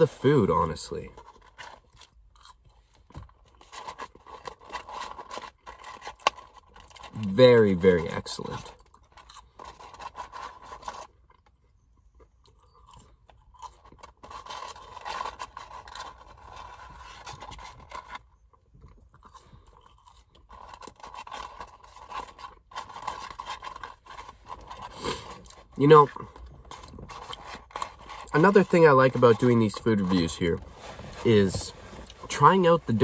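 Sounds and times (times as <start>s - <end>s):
person chewing crunchy food: 1.2s - 7.2s, 8.7s - 28.3s.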